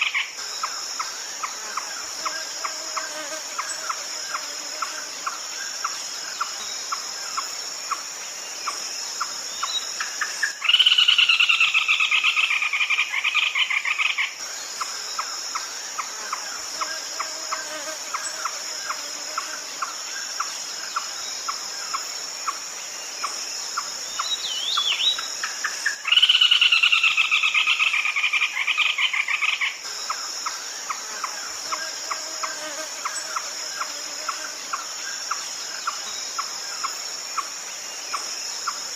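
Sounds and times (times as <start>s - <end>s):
insect chirring: 0.0s - 38.9s.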